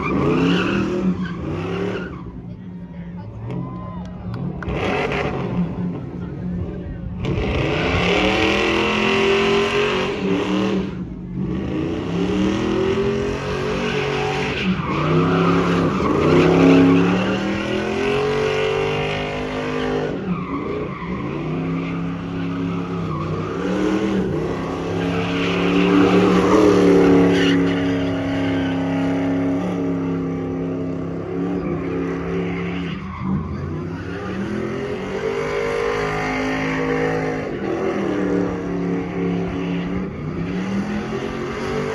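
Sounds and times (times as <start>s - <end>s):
tyres squealing on pavement: 0.0s - 6.0s, 12.6s - 38.1s
truck engine revving: 4.2s - 41.9s.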